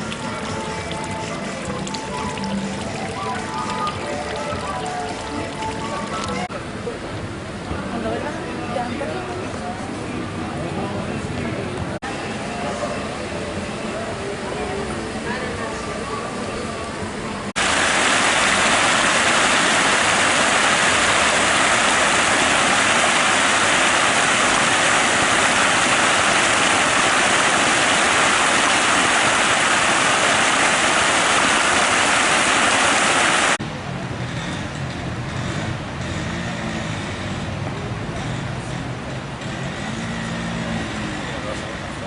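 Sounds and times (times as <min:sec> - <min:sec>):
loud steady rushing noise: 0:17.0 - 0:35.7.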